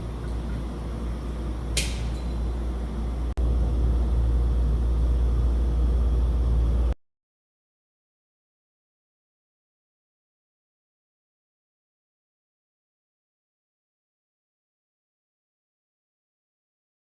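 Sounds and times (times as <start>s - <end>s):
ventilation fan rumbling: 0.0s - 7.0s
sharp click: 1.7s - 2.3s.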